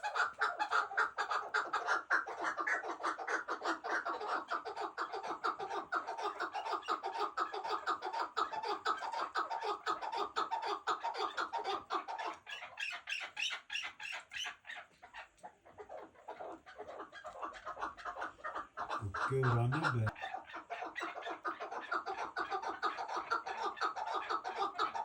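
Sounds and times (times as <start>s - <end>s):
partridge clucking call: 16.8s - 20.1s.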